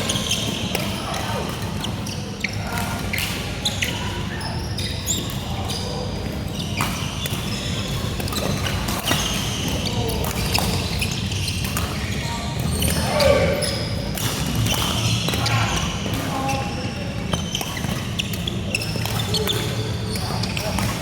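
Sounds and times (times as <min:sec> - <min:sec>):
distant chatter: 0:00.0 - 0:21.0
shoes squeaking on court floor: 0:00.0 - 0:21.0
racket hitting shuttlecock: 0:13.6 - 0:16.3.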